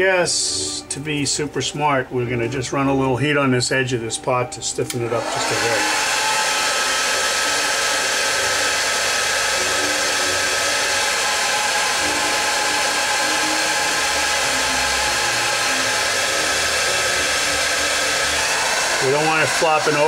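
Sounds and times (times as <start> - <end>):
hot-air blower rushing hiss: 4.9 - 20.0.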